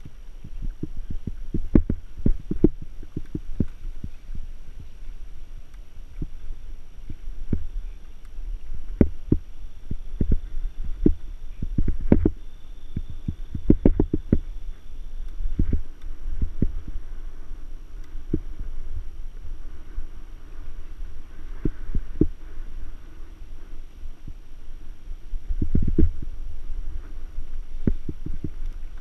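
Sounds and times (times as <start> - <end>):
low rumble: 0.0 - 29.0.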